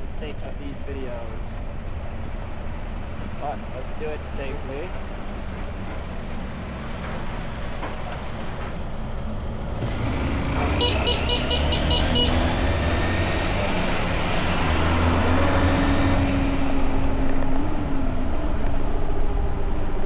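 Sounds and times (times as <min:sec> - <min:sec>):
motorbike engine speeding up: 0:09.8 - 0:20.0
horn short beeps: 0:10.8 - 0:12.5.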